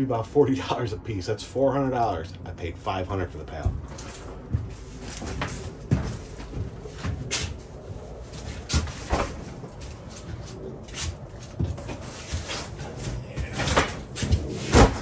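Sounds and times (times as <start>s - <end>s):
footsteps on wooden floor: 3.5s - 14.6s
cardboard boxes thumping: 13.4s - 15.0s.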